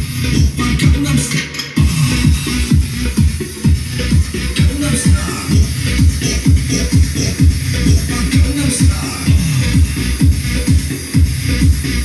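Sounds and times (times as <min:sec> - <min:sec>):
electronic dance music: 0:00.0 - 0:12.0
deep kick drum thumping: 0:01.8 - 0:11.8.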